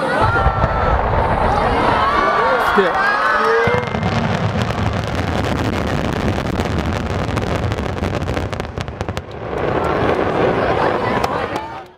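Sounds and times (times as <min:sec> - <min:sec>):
fireworks rumble: 0:00.0 - 0:11.9
fireworks crackling pops: 0:03.3 - 0:11.9.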